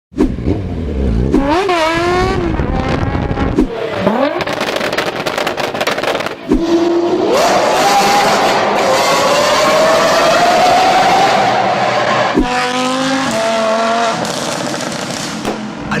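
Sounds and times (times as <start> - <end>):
loud engine revving: 0.2 - 15.8
deep engine rumble: 0.3 - 6.7.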